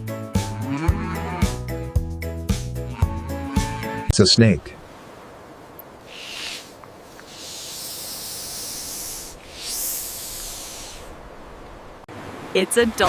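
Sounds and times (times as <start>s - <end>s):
snake hissing: 6.0s - 11.2s.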